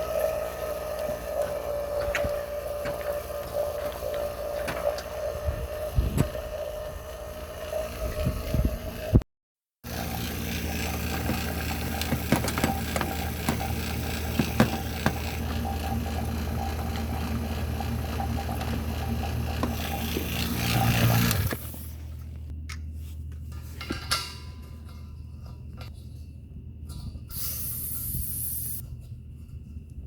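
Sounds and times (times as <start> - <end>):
car engine running: 0.0 - 9.2, 9.9 - 22.5
tools clicking and knocking: 11.0 - 15.4.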